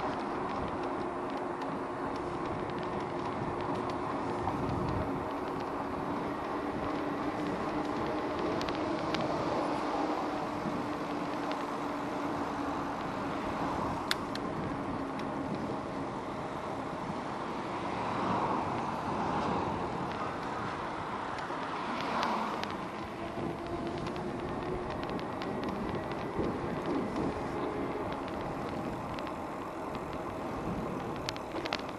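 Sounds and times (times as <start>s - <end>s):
e-bike riding noise: 0.0s - 31.9s
traffic: 0.0s - 31.9s.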